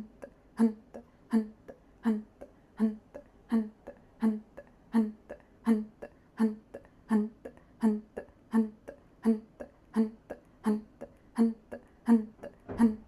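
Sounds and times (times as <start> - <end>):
soft inhale: 5.4 - 12.7.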